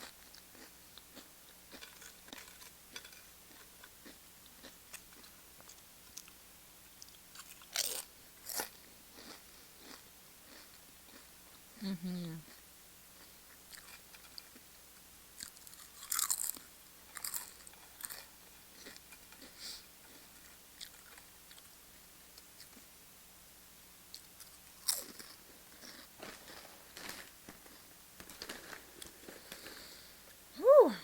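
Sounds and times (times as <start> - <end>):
quiet chewing: 0.0 - 14.7, 15.4 - 21.8
chips crunching: 0.2 - 6.4, 7.0 - 11.3, 13.7 - 14.6, 15.4 - 21.7, 24.1 - 29.9.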